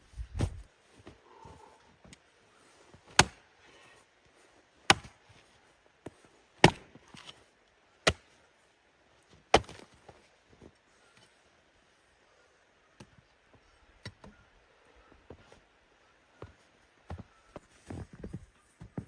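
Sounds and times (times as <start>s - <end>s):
axe chopping wood: 3.1s - 3.4s, 4.9s - 5.2s, 6.6s - 7.3s, 9.5s - 9.9s.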